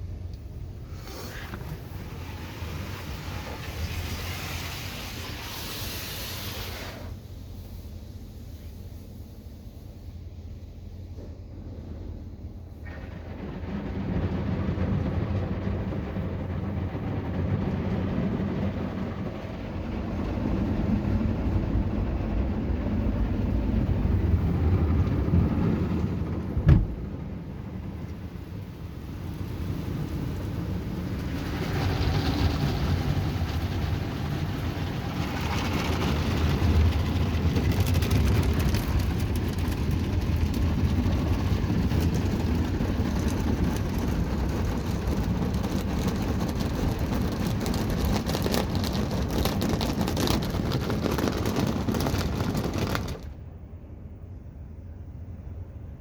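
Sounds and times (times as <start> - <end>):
car wash machine rumbling: 0.0 - 56.0
water spray on car body: 0.7 - 10.1, 28.0 - 53.4.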